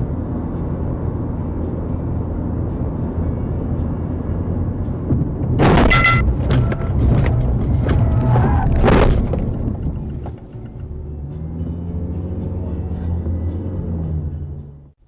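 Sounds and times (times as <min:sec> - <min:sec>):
vehicle and road noise: 0:00.0 - 0:15.0
loud vehicle crash impact: 0:05.1 - 0:10.2
scattered clatter: 0:05.1 - 0:10.8.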